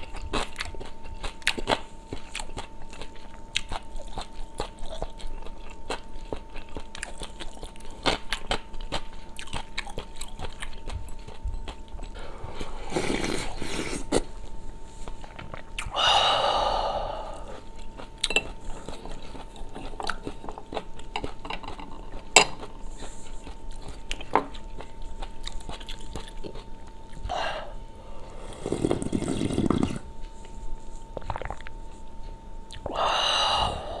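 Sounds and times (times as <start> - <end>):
faint steady hum: 0.0 - 34.0
person chewing: 0.0 - 34.0
loud breathy sound: 15.9 - 17.6, 32.9 - 34.0.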